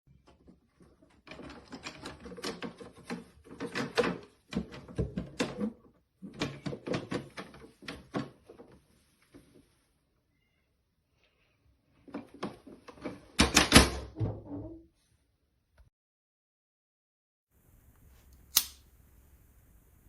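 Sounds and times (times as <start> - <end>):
plastic cat flap clattering: 0.2 - 8.8.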